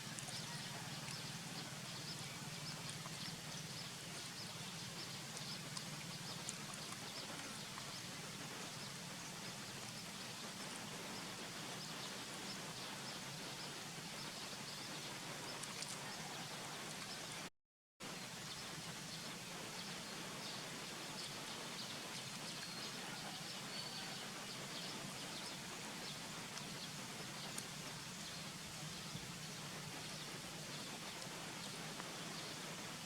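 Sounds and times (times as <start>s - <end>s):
faint high chirps and ticks: 0.0s - 17.4s
steady background hiss: 0.0s - 33.0s.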